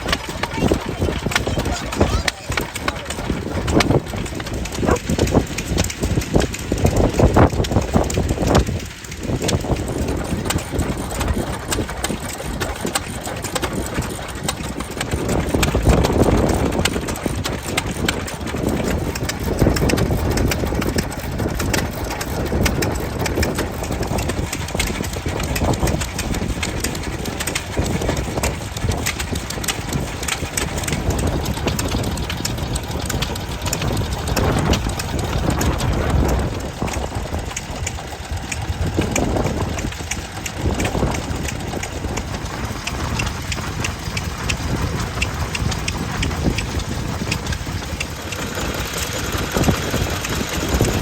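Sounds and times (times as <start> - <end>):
stationary engines running: 0.0 - 51.0.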